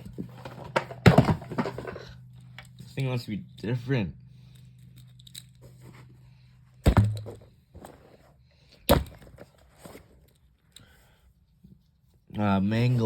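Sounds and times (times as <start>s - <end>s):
ceiling fan crashing: 0.0s - 2.2s, 6.8s - 7.5s
fan motor hum: 0.0s - 13.0s.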